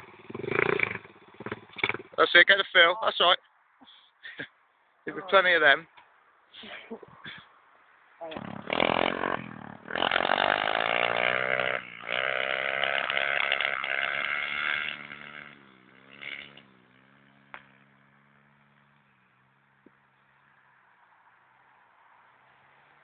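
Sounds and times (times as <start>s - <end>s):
motorbike engine revving: 0.0s - 2.4s, 8.3s - 19.3s.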